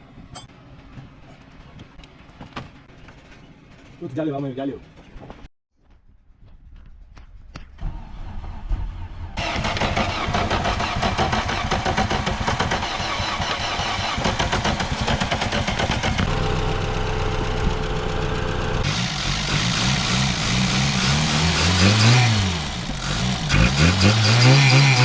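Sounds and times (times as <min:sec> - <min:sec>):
car engine starter cranking: 0:09.4 - 0:16.5
car engine running: 0:09.4 - 0:25.0.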